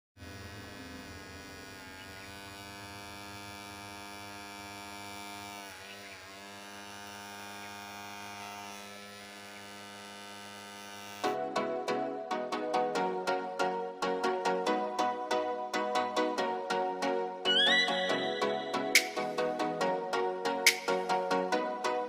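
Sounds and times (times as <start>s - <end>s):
small electric motor humming: 0.2s - 11.3s.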